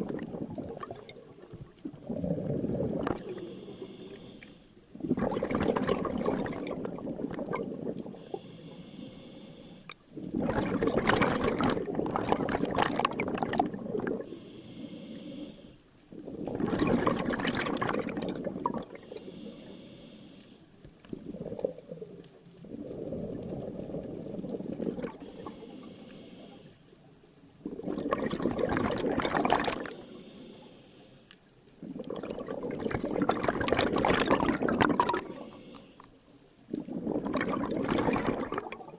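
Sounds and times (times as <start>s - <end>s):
bubbling exhalations underwater: 0.0s - 3.4s, 5.0s - 8.2s, 10.1s - 14.3s, 16.2s - 19.0s, 21.1s - 25.5s, 27.6s - 30.0s, 31.8s - 35.4s, 36.7s - 38.9s
hissing regulator inhalation: 3.0s - 4.8s, 8.1s - 10.0s, 14.2s - 15.8s, 18.9s - 20.7s, 25.1s - 26.8s, 29.7s - 31.4s, 35.0s - 36.2s.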